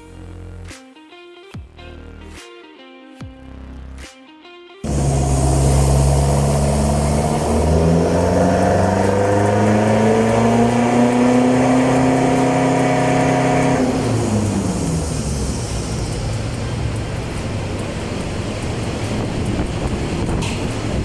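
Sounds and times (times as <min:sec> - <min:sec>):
engine revving at full throttle: 0:04.8 - 0:21.0.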